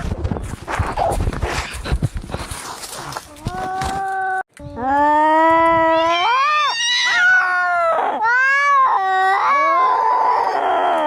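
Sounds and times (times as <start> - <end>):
cats yowling: 5.3 - 11.0
cat screeching: 5.8 - 11.0.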